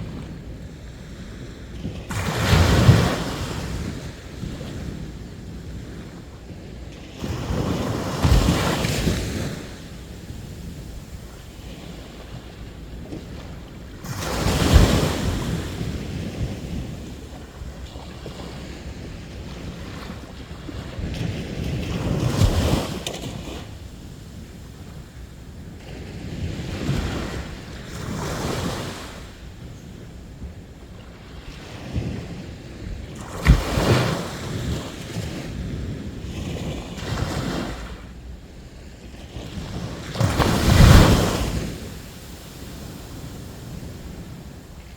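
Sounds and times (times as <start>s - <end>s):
sea waves washing onto beach: 0.0s - 29.4s, 31.1s - 38.2s, 39.3s - 44.9s.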